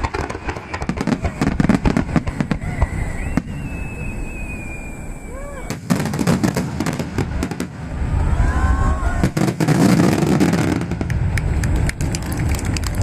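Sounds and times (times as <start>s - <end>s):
firework bangs and crackling: 0.0s - 13.0s
firework whistle falling in pitch: 2.4s - 5.8s.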